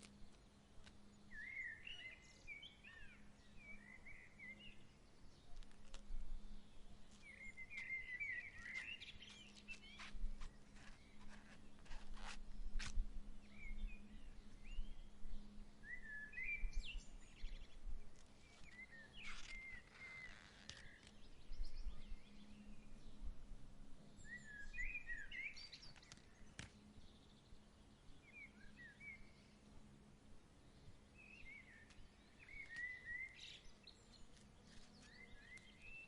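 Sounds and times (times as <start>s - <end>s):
songbirds chirping: 0.0s - 36.0s
low breeze rumble: 20.9s - 32.4s.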